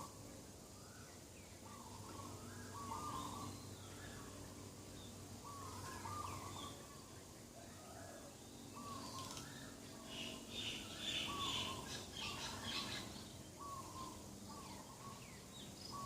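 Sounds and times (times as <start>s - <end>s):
faint steady hum: 0.0s - 16.0s
bird warbling: 1.6s - 4.4s, 5.4s - 7.1s, 8.8s - 16.0s.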